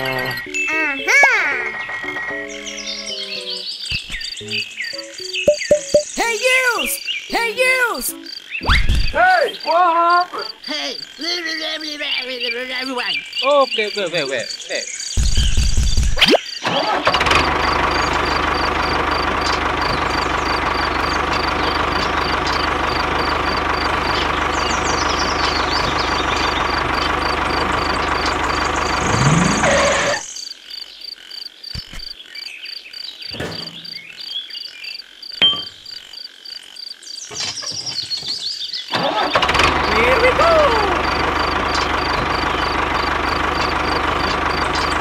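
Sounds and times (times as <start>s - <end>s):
tractor engine idling: 16.7s - 30.2s, 38.9s - 45.0s.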